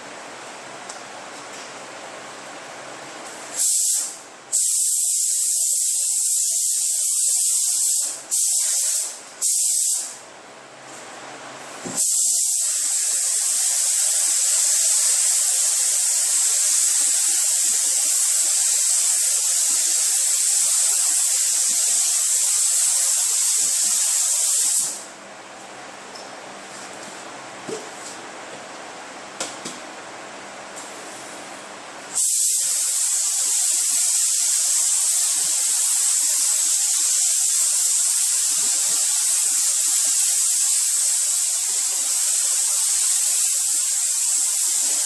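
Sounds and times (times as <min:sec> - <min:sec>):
paint spray gun hissing: 0:03.5 - 0:10.2, 0:11.9 - 0:25.1, 0:32.1 - 0:45.0.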